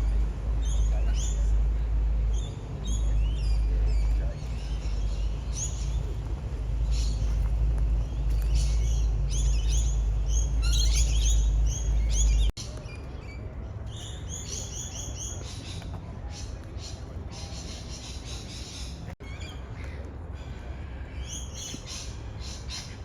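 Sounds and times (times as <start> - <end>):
low rumble: 0.0 - 12.6
small birds chirping: 0.0 - 23.0.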